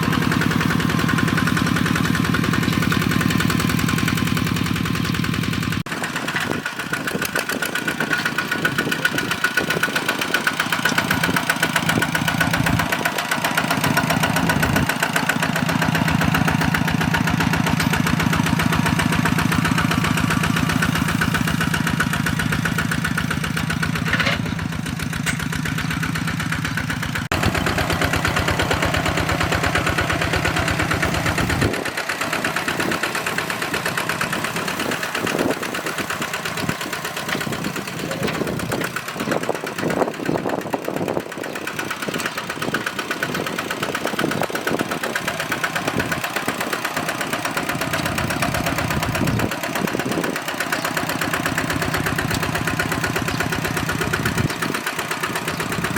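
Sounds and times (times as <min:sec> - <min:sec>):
diesel engine chugging: 0:00.0 - 0:55.9.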